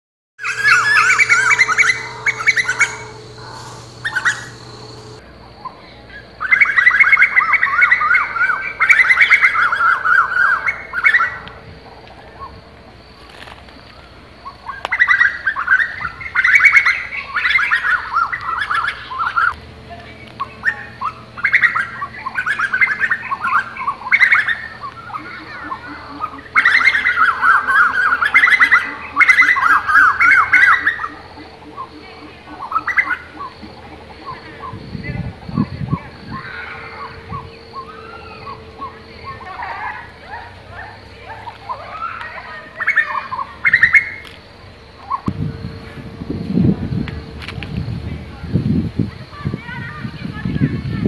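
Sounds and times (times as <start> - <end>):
birds shrill chattering: 0.4 - 5.2, 13.9 - 45.8.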